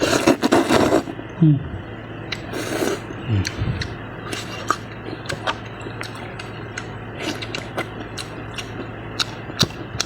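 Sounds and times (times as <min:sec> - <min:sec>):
person chewing noodles: 0:00.0 - 0:01.1, 0:02.3 - 0:10.0.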